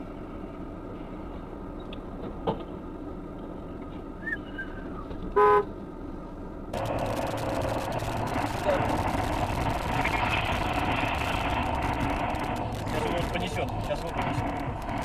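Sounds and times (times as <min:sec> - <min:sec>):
vehicle road and engine noise: 0:00.0 - 0:15.0
short car horn toot: 0:05.3 - 0:05.7.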